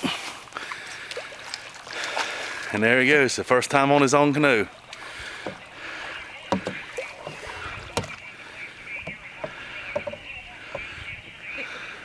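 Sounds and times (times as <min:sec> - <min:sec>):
paddle plunks and splashes: 0:00.0 - 0:11.9
paddle knocking canoe hull: 0:03.6 - 0:11.4.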